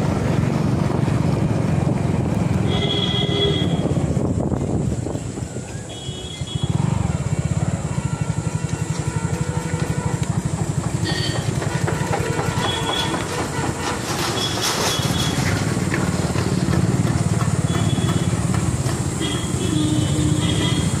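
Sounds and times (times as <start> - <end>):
motorcycle engine puttering: 6.5 - 21.0.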